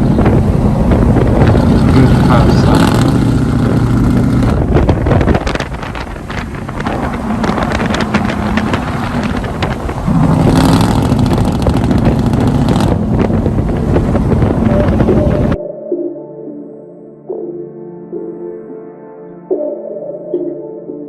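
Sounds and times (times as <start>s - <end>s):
truck engine and exhaust: 0.0s - 15.6s
wind buffeting microphone: 0.0s - 15.6s.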